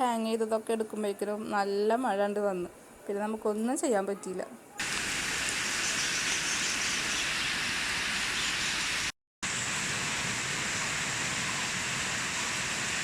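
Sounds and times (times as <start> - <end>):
heavy rain falling: 4.8 - 6.6.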